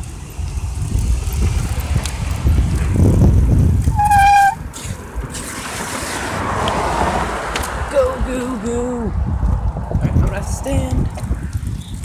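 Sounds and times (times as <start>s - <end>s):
wind rumbling on microphone: 0.0s - 12.0s
short high squeal: 3.9s - 4.6s.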